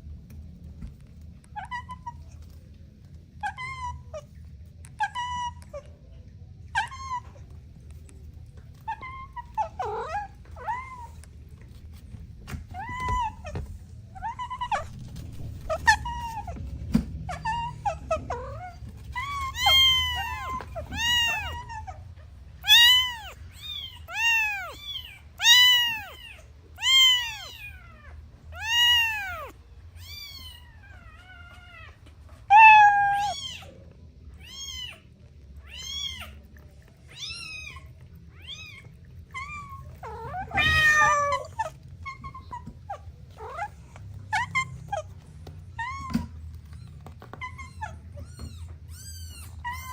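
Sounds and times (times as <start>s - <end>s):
kittens meowing: 6.6s - 49.9s
harsh drawn-out kitten cry: 8.8s - 11.2s, 12.7s - 16.6s, 17.2s - 33.8s, 34.4s - 49.9s.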